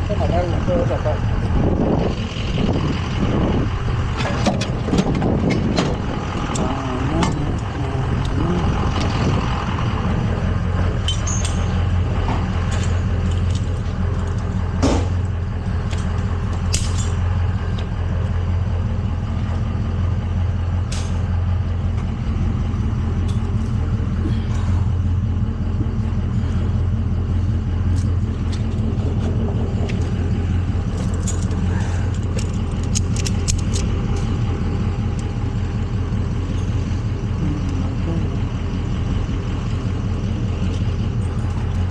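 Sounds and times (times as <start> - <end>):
truck engine idling: 0.0 - 41.9
metallic clicks and clanks: 11.0 - 18.0, 27.9 - 37.0.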